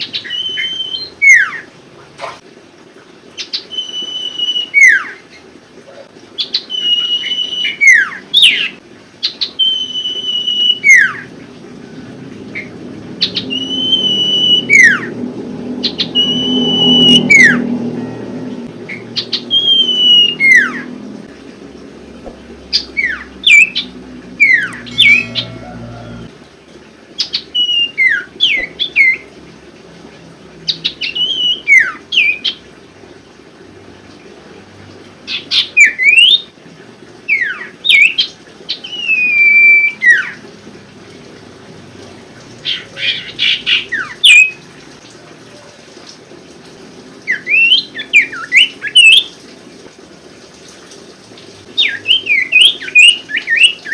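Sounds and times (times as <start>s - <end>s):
bird singing whistled notes: 0.1s - 1.6s, 3.6s - 5.1s, 6.5s - 8.7s, 9.5s - 11.2s, 13.2s - 15.1s, 15.8s - 18.1s, 18.9s - 20.9s, 24.4s - 26.2s, 27.5s - 29.2s, 31.0s - 32.5s, 38.8s - 40.4s, 43.7s - 44.6s, 47.3s - 49.2s, 51.8s - 53.9s.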